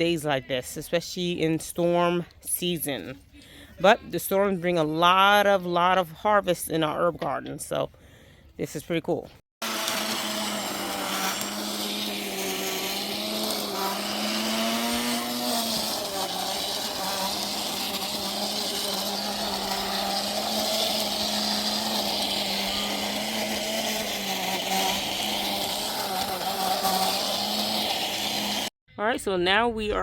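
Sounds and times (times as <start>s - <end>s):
small motor humming: 9.6s - 28.7s.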